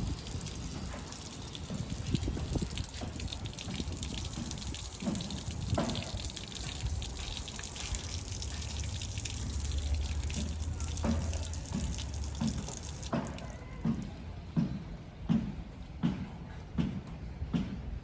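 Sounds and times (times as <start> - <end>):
water running and splashing: 0.0 - 14.1.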